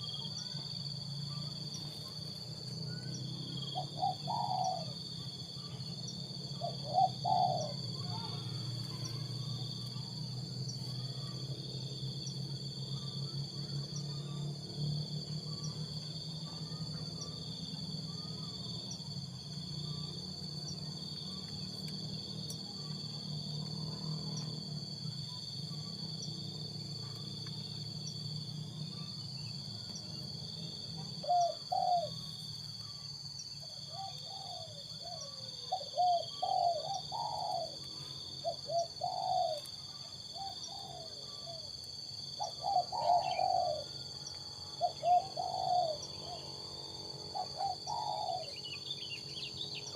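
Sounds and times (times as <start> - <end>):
insect drone: 0.0 - 49.9
dove cooing: 3.6 - 5.0, 6.6 - 9.7, 31.0 - 32.2, 33.9 - 41.7, 42.4 - 44.1, 44.8 - 46.6, 47.3 - 49.1.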